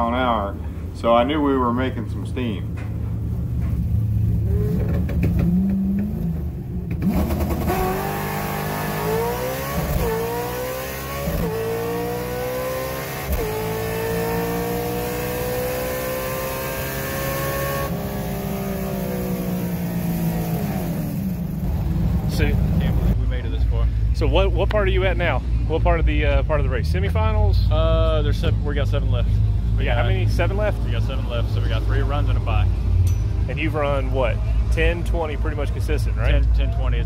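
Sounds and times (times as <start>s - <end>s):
drag car engine revving: 4.0s - 23.2s.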